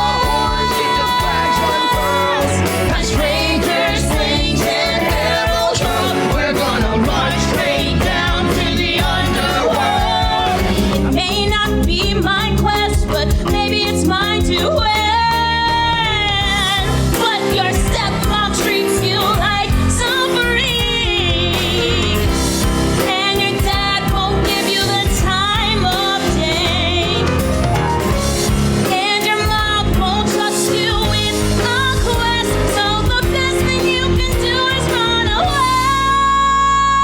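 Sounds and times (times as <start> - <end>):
singers with wavering held notes: 0.0 - 11.4
pop-rock band accompaniment: 0.0 - 37.0.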